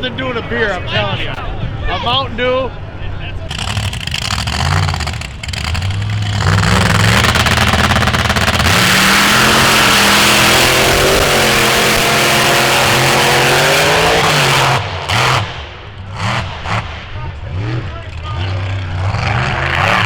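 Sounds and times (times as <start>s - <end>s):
loud rushing noise: 3.5s - 17.9s
vehicle engine revving hard: 3.5s - 20.0s.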